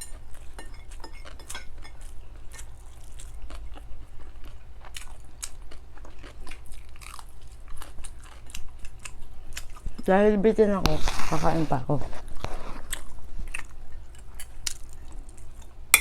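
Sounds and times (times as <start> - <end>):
chewing crispy fried fish: 0.1 - 10.3, 12.2 - 15.8.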